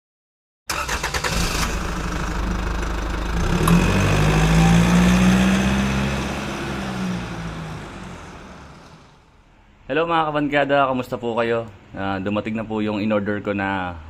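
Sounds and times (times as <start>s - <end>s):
vehicle engine cranking and revving: 0.7s - 9.2s.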